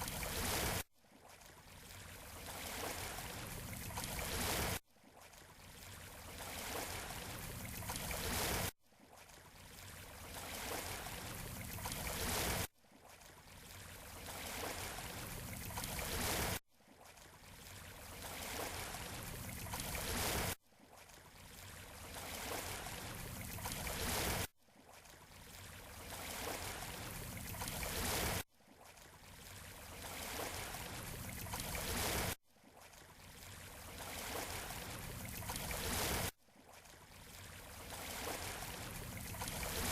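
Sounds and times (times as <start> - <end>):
ocean surf washing on shore: 37.9 - 39.9.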